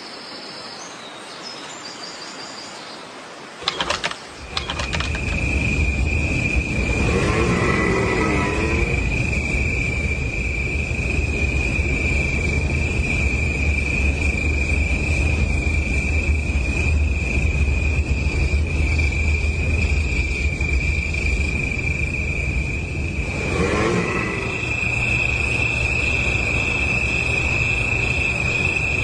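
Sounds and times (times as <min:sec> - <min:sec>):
high-pitched insect drone: 0:03.8 - 0:29.0
low rumble: 0:16.2 - 0:29.0.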